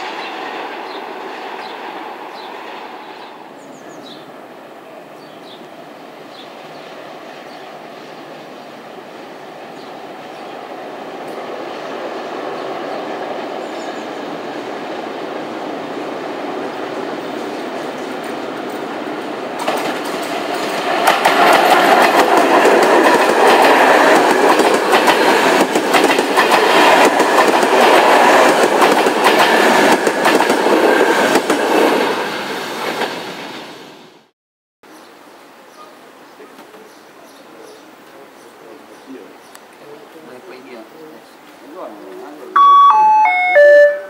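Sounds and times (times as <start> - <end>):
train wheels clacking over rails: 17.2 - 32.1.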